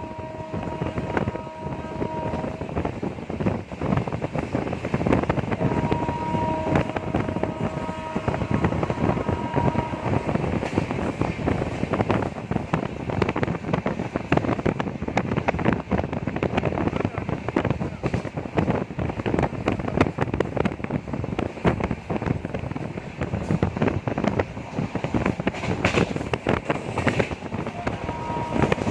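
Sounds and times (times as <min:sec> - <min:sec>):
rushing wind noise: 0:00.0 - 0:28.9
train wheels clattering over rails: 0:06.6 - 0:28.9.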